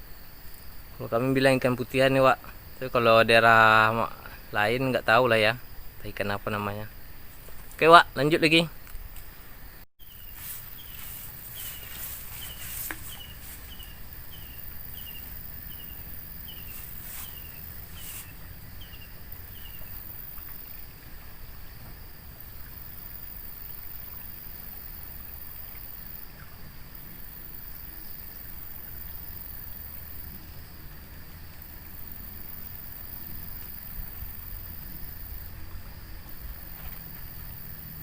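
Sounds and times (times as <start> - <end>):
insect drone: 0.0 - 38.0
animal high falling chirps: 10.1 - 15.9.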